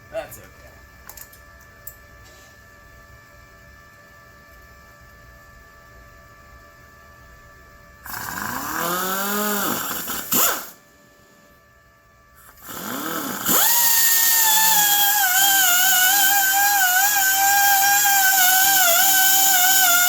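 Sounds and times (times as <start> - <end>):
welding arc buzzing and crackling: 8.0 - 10.8, 12.4 - 20.0.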